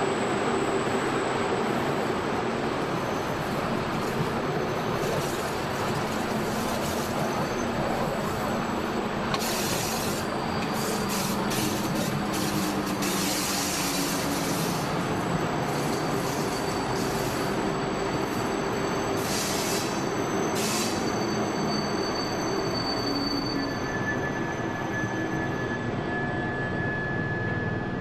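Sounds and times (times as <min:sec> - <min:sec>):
electric train rumbling on rails: 0:00.0 - 0:28.0.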